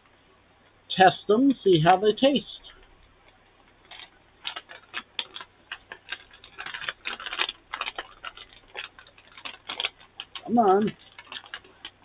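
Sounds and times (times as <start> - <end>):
plastic snack bag crinkling: 2.6 - 12.0.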